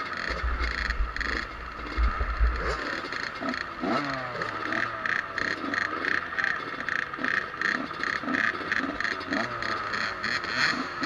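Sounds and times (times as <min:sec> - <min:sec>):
two-stroke motorbike engines revving: 0:00.0 - 0:11.0
heavy low rumble: 0:00.2 - 0:03.4.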